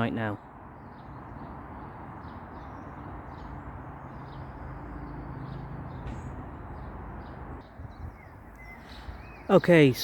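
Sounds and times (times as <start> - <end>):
road traffic rumble: 0.0 - 10.0
small birds chirping: 0.0 - 10.0
vehicle engine hum: 0.6 - 10.0.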